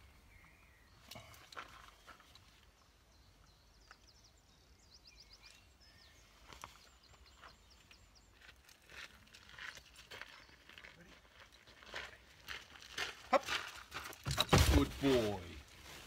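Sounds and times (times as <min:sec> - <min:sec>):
small bird chirping: 0:00.0 - 0:10.7.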